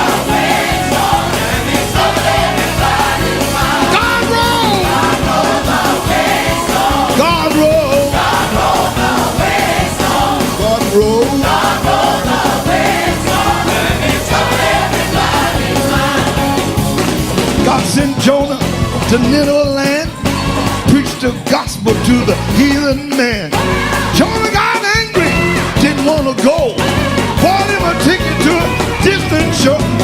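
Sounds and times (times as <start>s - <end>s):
choir singing: 0.0s - 18.4s
gospel band with steady beat: 0.0s - 30.0s.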